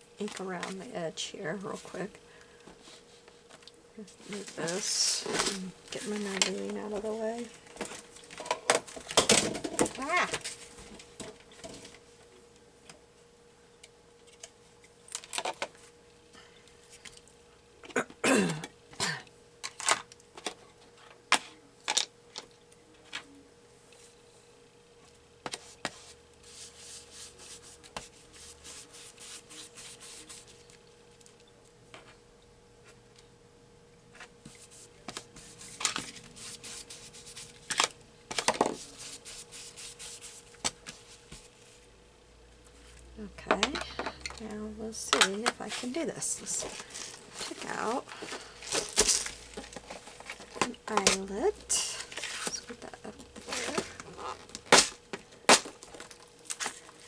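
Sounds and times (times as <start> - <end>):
faint steady hum: 0.0 - 57.0
paper rustling: 4.2 - 8.3, 34.4 - 41.8, 45.1 - 57.0.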